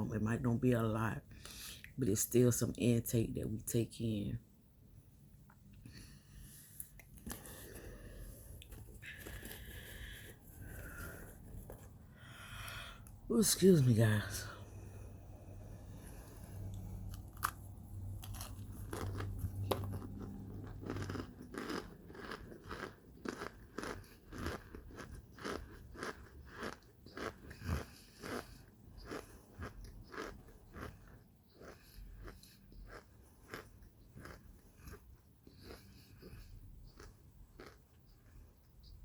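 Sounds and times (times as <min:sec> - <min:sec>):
chewing and crunching: 0:05.5 - 0:12.0, 0:16.0 - 0:38.9.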